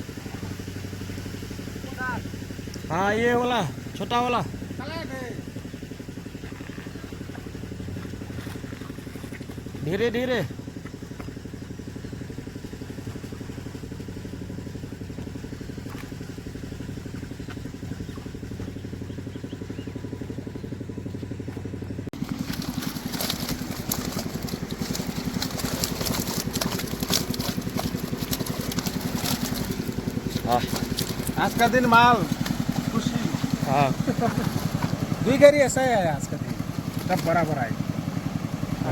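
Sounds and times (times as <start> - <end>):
small engine running: 0.0 - 38.9
crackling and clattering: 22.2 - 35.2.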